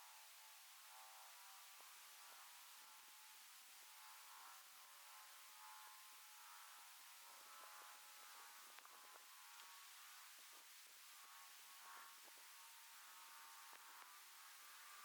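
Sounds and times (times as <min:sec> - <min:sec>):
faint low hum: 0:00.0 - 0:15.0
faint steady hiss: 0:00.0 - 0:15.0
soft ticks: 0:08.8 - 0:09.0.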